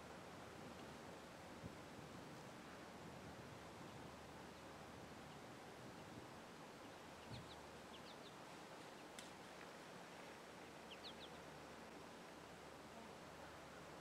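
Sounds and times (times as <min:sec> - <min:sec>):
faint tick: 0:09.1 - 0:09.8
faint bird chirps: 0:10.9 - 0:11.5.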